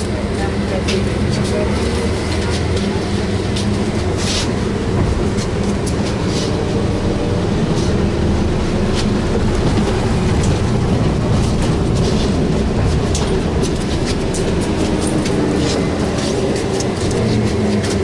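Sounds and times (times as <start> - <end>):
trolleybus running rumble: 0.0 - 18.0
body rattles and clicks: 2.2 - 6.8, 8.9 - 18.0.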